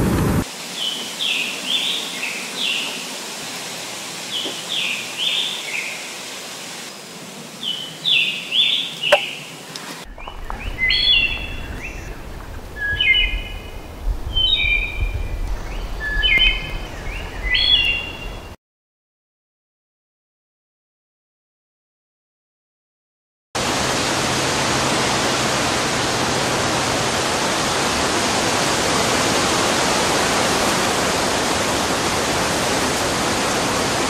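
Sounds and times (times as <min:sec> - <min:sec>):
bird singing burry phrases: 0:07.6 - 0:14.9
bird singing flute-like phrases: 0:10.1 - 0:12.2, 0:15.7 - 0:18.6
low rumble: 0:10.1 - 0:17.2.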